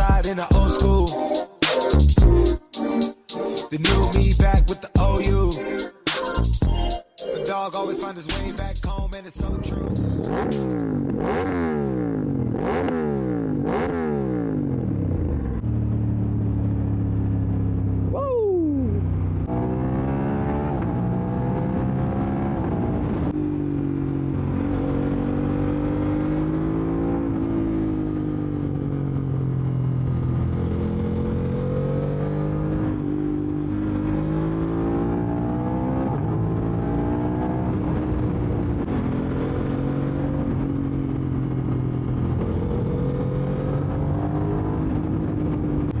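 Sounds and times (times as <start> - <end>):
motorcycle engine revving: 9.4 - 18.2, 18.8 - 46.0.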